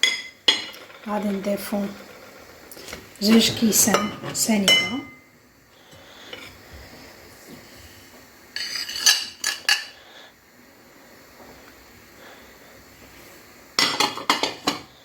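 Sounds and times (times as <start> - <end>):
kitchenware clinking on bowl: 3.4 - 5.2.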